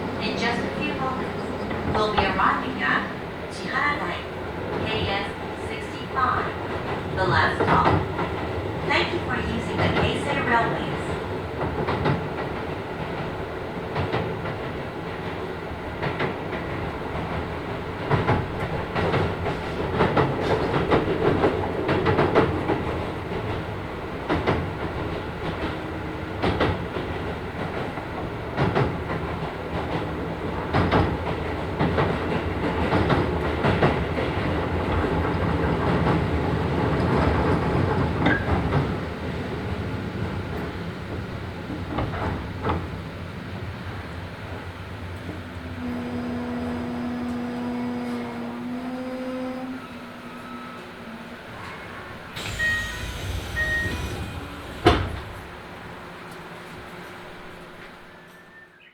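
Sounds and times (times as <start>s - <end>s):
electric train rumbling: 0.0s - 58.6s
wheels clicking over rail joints: 52.4s - 55.8s.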